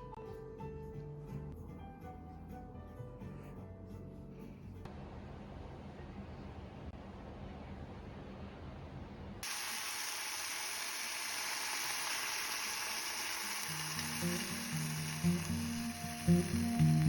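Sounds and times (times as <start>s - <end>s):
food sizzling in a frying pan: 9.4s - 17.0s.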